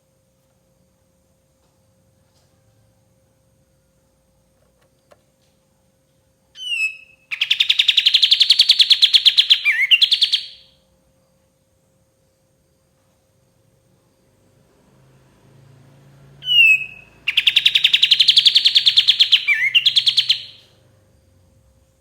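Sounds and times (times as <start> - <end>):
faint steady hum: 0.0 - 22.0
bird whistling and chattering: 6.6 - 10.7, 16.4 - 20.7.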